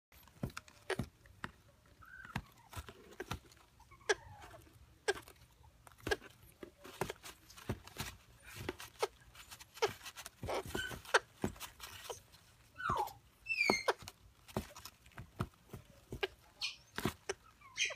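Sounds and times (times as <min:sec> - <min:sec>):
parrots clicking: 0:00.2 - 0:17.9
parrot whistled calls: 0:12.8 - 0:14.0.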